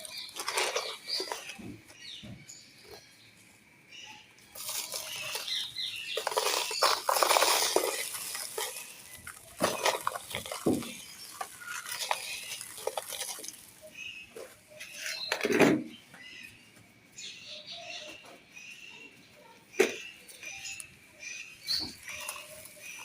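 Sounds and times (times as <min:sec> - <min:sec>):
grains pattering down: 0:00.0 - 0:01.7, 0:04.6 - 0:14.1
clay pieces crumbling and crunching: 0:00.0 - 0:01.8, 0:04.6 - 0:14.0.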